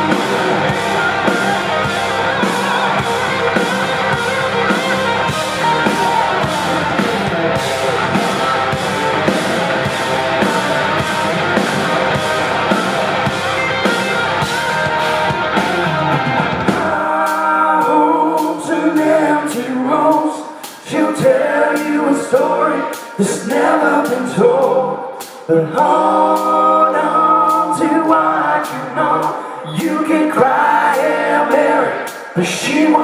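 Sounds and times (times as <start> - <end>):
bass guitar: 0.0 - 17.2
electric guitar: 0.0 - 17.2
drums: 0.0 - 33.0.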